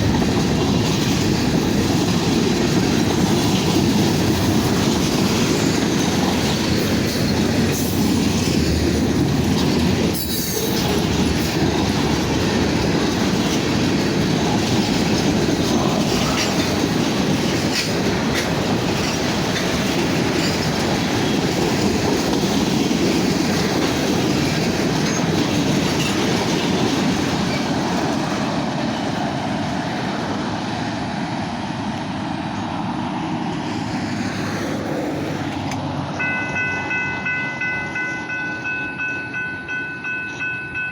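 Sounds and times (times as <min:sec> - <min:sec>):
train wheels clattering over rail joints: 0:00.0 - 0:29.8.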